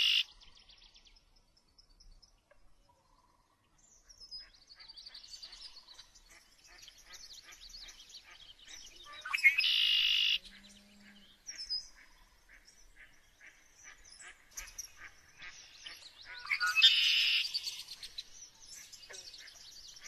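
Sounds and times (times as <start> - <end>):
loud harsh bird squawks: 0.0 - 0.3, 9.0 - 10.4, 16.2 - 17.8
birds chirping: 0.0 - 2.5, 3.8 - 20.0.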